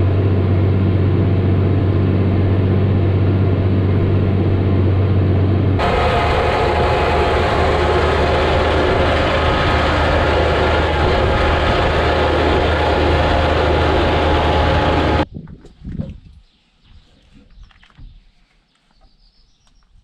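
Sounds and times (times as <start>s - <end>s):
tractor engine running: 0.0s - 15.2s.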